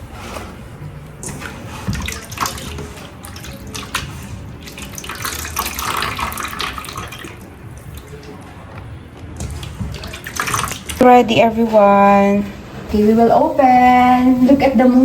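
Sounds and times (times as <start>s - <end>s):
water running and splashing: 1.2s - 11.1s.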